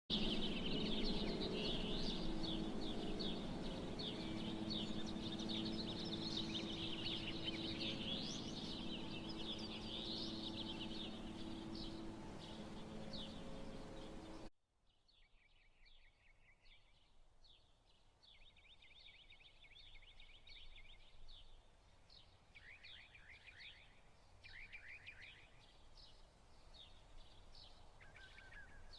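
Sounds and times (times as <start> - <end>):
steady low hum: 0.1 - 14.5
small birds chirping: 0.1 - 28.9.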